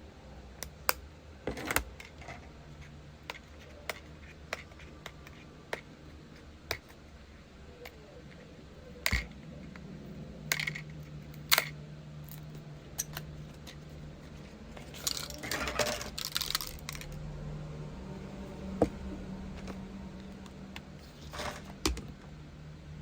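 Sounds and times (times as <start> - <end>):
steady low hum: 0.0 - 23.0
small hard objects clicking: 14.9 - 17.2.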